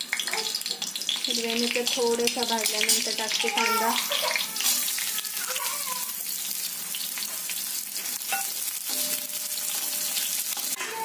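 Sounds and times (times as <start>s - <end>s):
onion sizzling in hot oil: 0.0s - 11.0s
metal spatula stirring: 8.0s - 11.0s.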